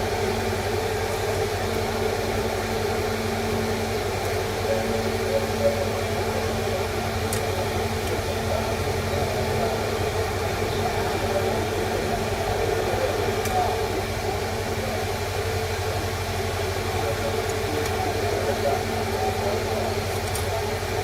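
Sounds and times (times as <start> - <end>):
background hum and hiss: 0.0 - 21.0
faint clicks: 7.2 - 8.3, 20.1 - 20.6.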